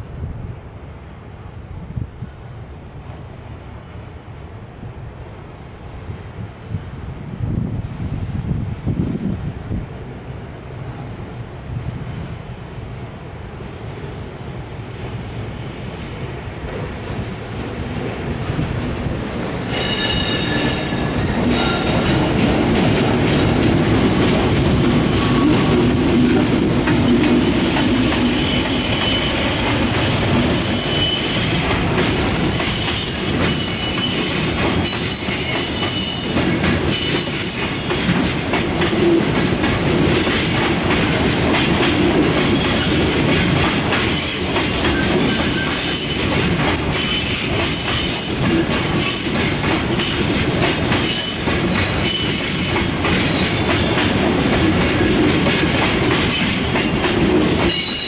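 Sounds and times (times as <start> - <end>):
freight train rumbling past: 0.0 - 58.0
wheels and brakes squealing: 1.2 - 2.0, 19.7 - 22.0, 27.4 - 38.0, 44.1 - 46.4, 47.0 - 48.4, 51.0 - 52.9, 57.7 - 58.0.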